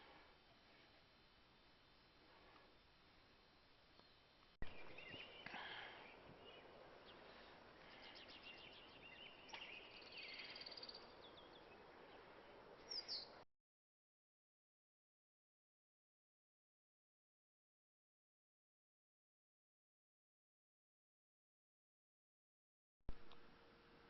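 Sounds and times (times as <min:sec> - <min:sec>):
low background hiss: 0:00.0 - 0:13.4
small birds chirping and trilling: 0:03.9 - 0:13.4.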